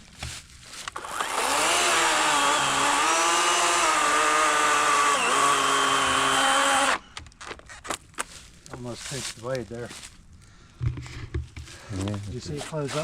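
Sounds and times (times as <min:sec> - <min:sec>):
electric chainsaw cutting log: 0:00.9 - 0:07.0.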